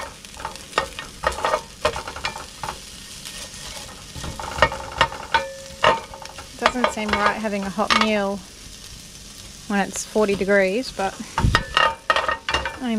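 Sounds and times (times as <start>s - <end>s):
utensil scraping a pan: 0.0s - 8.2s
onions sizzling in a pan: 0.0s - 12.9s.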